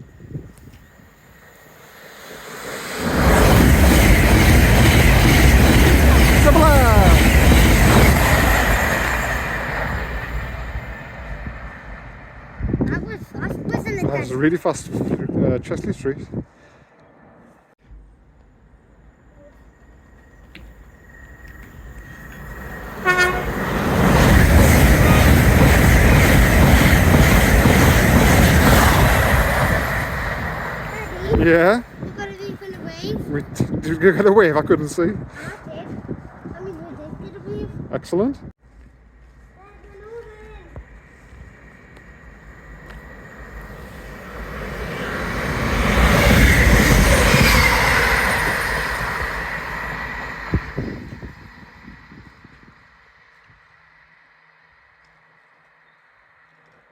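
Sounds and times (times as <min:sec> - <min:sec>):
train passing with loud rumble: 0:00.0 - 0:56.9
train horn toot: 0:23.0 - 0:23.6.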